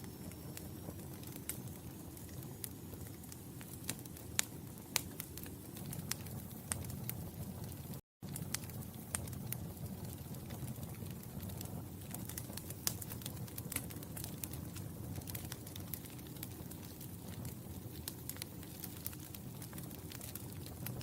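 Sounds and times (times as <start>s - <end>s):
low rumble of burning: 0.0s - 21.0s
wood fire crackling: 0.0s - 21.0s.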